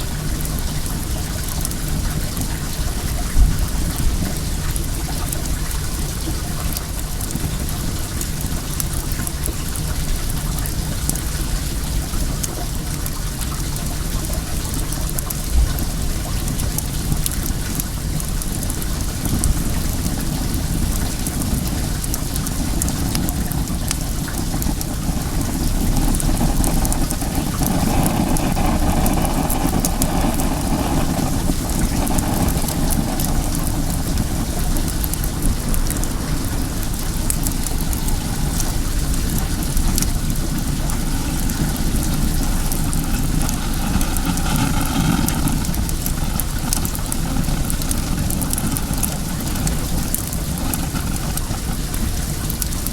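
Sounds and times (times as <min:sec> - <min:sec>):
running water rushing: 0:00.0 - 0:52.9
wood fire crackling: 0:00.0 - 0:52.9
low rumble: 0:19.1 - 0:52.4.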